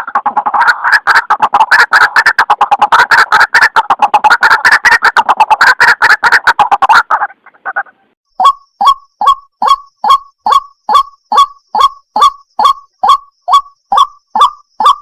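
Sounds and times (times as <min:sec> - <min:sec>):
waterhen harsh repeated calls: 0:00.0 - 0:15.0
single bird calls: 0:07.1 - 0:15.0.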